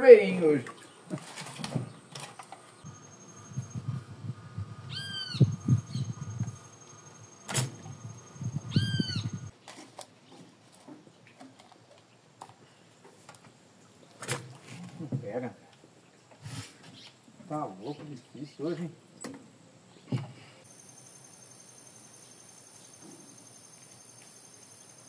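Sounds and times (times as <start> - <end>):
wind rumble on microphone: 2.9 - 6.9, 7.5 - 9.5
arching bird calls: 4.8 - 9.5.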